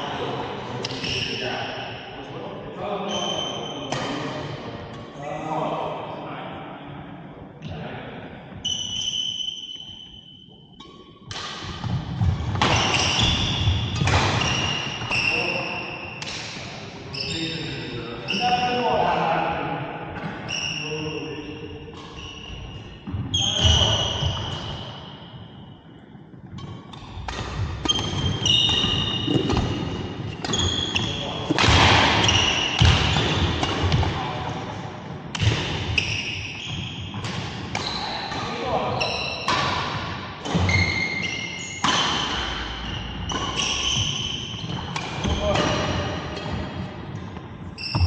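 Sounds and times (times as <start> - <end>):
shoes squeaking on court floor: 3.0 - 4.2, 8.6 - 18.8, 20.2 - 34.4, 35.4 - 48.0
racket hitting shuttlecock: 10.8 - 15.1, 26.5 - 34.2, 35.3 - 36.3, 37.1 - 38.5, 39.4 - 41.2, 41.8 - 48.0.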